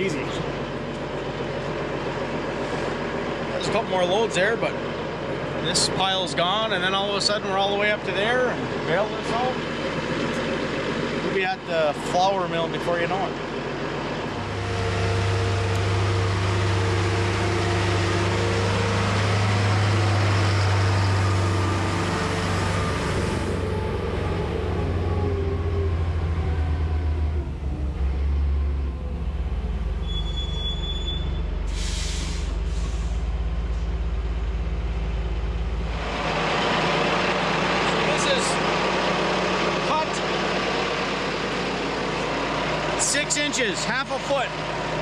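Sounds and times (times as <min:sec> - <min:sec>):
heavy diesel engine running: 0:00.0 - 0:45.0.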